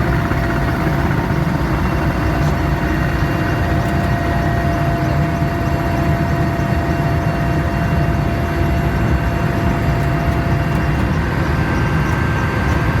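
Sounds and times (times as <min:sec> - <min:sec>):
helicopter engine and rotor drone: 0:00.0 - 0:13.0
faint steady whine: 0:09.1 - 0:13.0.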